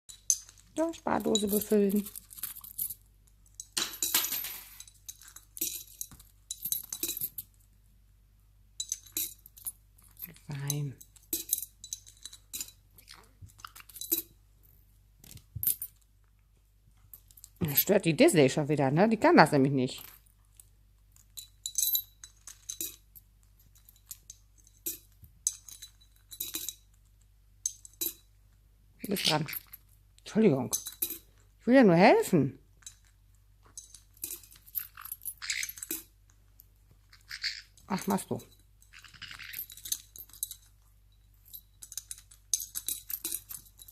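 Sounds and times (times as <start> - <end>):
coins clinking into piggy bank: 3.6 - 7.4, 23.7 - 26.8, 37.2 - 40.7, 41.5 - 43.9.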